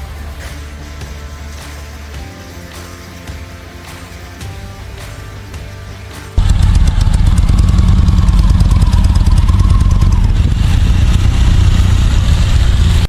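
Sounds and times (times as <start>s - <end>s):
motorcycle engine running: 6.4s - 13.0s.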